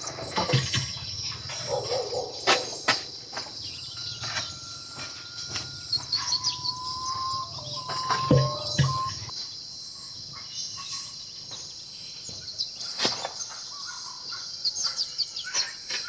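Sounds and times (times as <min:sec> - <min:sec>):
insects buzzing: 0:00.0 - 0:09.4.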